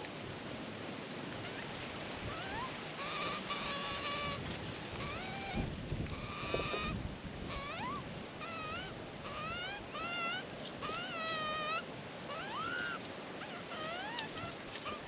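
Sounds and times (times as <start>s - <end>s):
wind noise: 1.5s - 9.9s
magpie warbling calls: 2.3s - 4.4s, 5.0s - 15.0s.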